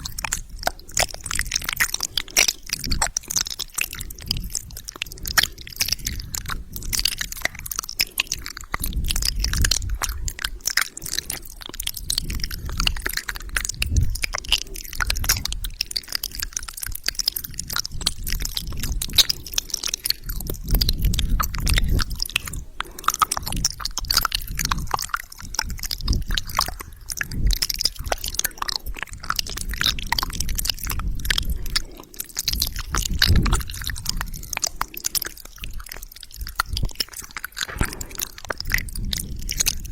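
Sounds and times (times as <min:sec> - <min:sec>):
low breathy rumble: 0:00.0 - 0:39.9
wet mouth clicks and smacks: 0:00.0 - 0:39.9.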